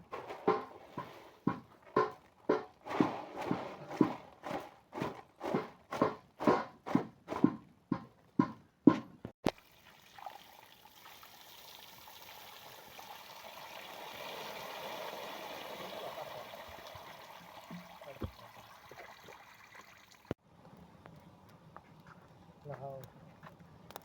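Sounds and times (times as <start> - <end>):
sharp knocks: 0.1 - 9.3
water running: 9.5 - 20.4.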